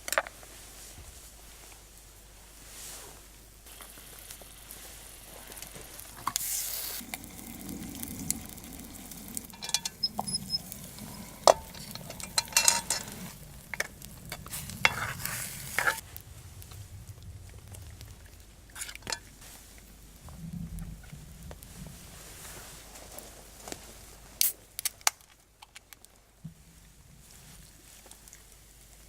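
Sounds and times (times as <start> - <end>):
food sizzling in a pan: 3.7 - 16.0
utensil clicking and scraping: 6.2 - 16.0.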